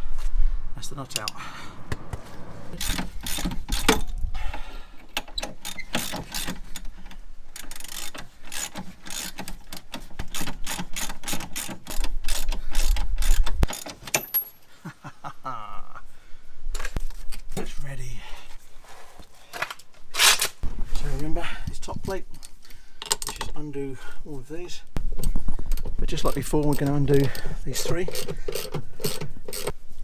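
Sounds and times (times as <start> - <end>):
low rumble: 0.0 - 4.5
ratchet wrench clicking: 2.8 - 4.2, 7.5 - 14.3, 26.3 - 29.7.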